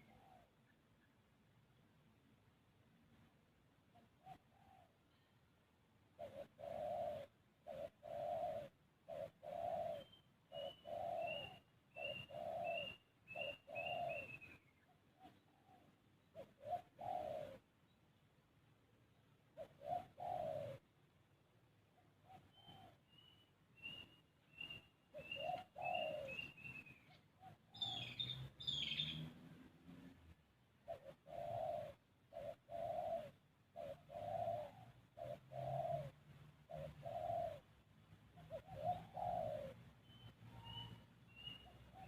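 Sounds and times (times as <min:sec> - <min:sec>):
dove cooing: 0:00.0 - 0:00.7, 0:03.8 - 0:05.2, 0:06.1 - 0:17.7, 0:19.4 - 0:42.0
higher bird calls: 0:06.2 - 0:17.7, 0:21.8 - 0:29.4, 0:30.8 - 0:42.0
small bird chirping: 0:06.2 - 0:18.3, 0:21.9 - 0:42.0.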